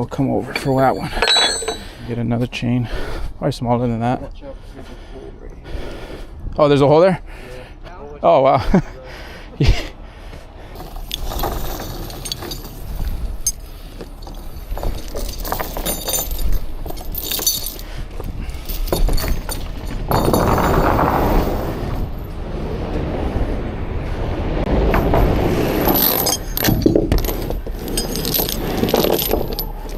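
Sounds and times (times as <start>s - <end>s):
chain clinking and rattling: 0.4s - 2.0s, 10.8s - 22.3s, 24.9s - 29.9s
scraping rush: 10.7s - 29.9s
low rumble: 10.9s - 29.9s.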